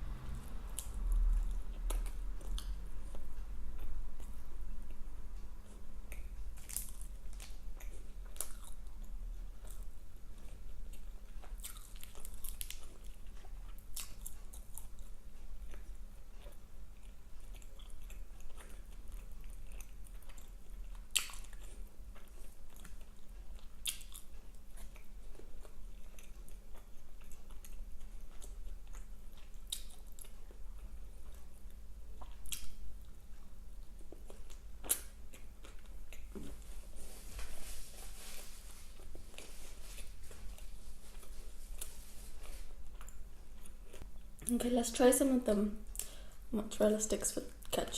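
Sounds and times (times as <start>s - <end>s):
close chewing and biting food: 5.6s - 37.0s, 38.9s - 44.5s.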